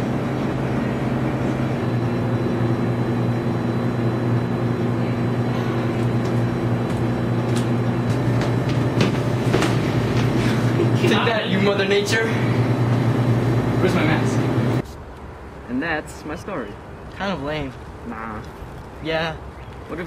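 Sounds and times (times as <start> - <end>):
mechanical drone: 0.0 - 14.8.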